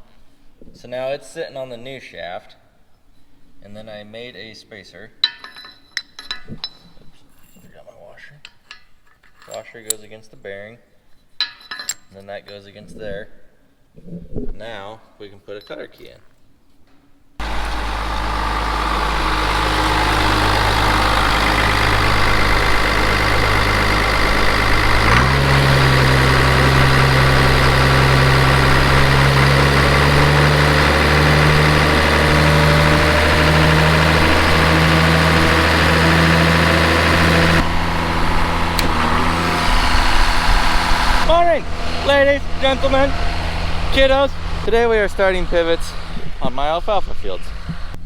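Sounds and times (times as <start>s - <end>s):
engine running: 17.4s - 48.0s.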